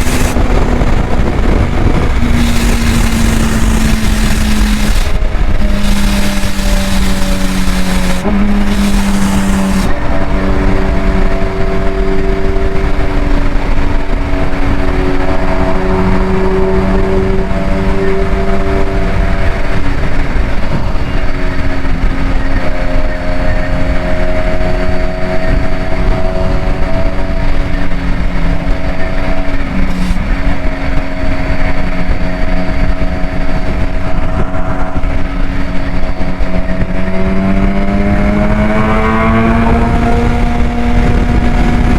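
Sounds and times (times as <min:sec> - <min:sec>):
vehicle engine running: 0:00.0 - 0:41.9.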